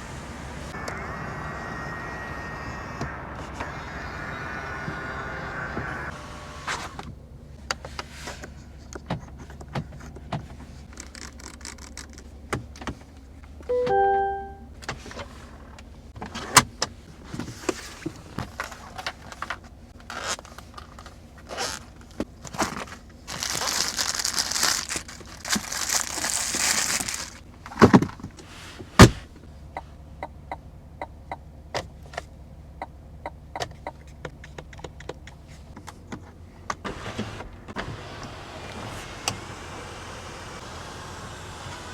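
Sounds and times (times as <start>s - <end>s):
low steady hum: 13.6s - 14.8s
button and switch clicks: 13.7s - 14.6s
short electronic chime: 13.7s - 14.7s.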